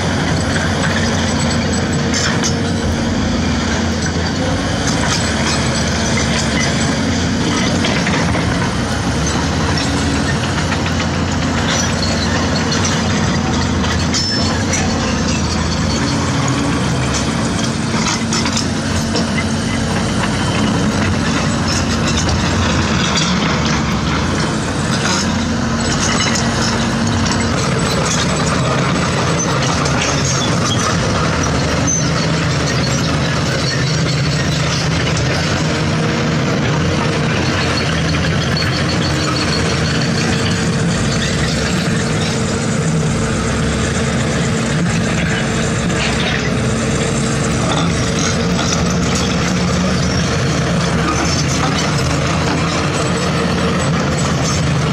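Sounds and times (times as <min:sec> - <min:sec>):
diesel machinery engine drone: 0:00.0 - 0:54.9
metallic clanks and knocks: 0:04.0 - 0:42.6.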